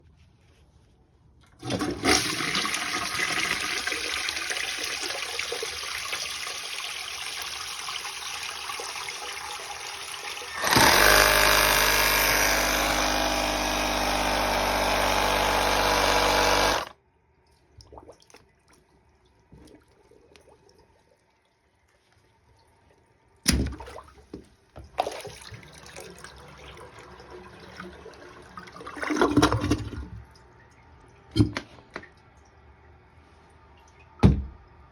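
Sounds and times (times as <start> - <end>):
toilet flushing: 1.5 - 16.9, 25.0 - 30.3
water rushing through toilet bowl: 1.5 - 16.9, 25.0 - 30.2
air-burst drain cleaner bang: 10.5 - 16.9.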